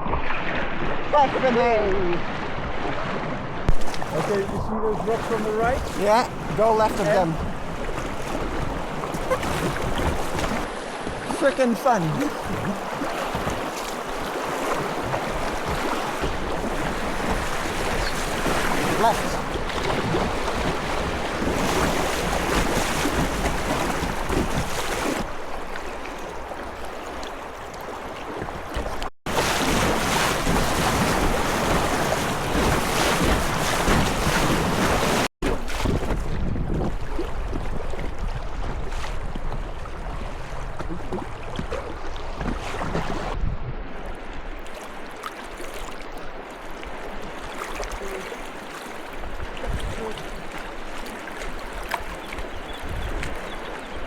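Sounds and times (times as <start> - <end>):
wind buffeting microphone: 35.5 - 44.6, 49.2 - 50.3, 51.8 - 54.0.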